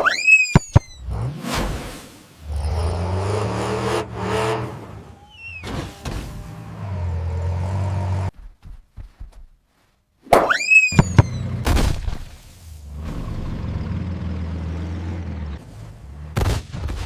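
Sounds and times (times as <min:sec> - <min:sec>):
vehicle engine low hum: 0:02.4 - 0:08.3, 0:12.3 - 0:17.0.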